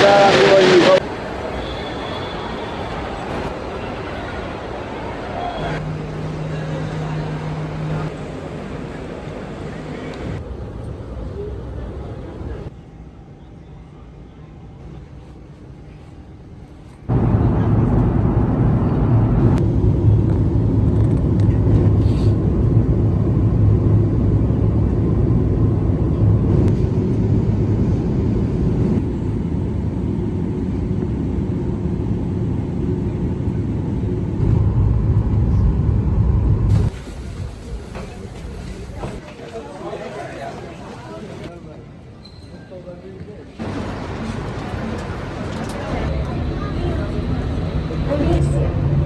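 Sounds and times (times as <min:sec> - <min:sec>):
vehicle engine rumble: 0:17.1 - 0:39.2, 0:43.6 - 0:49.0.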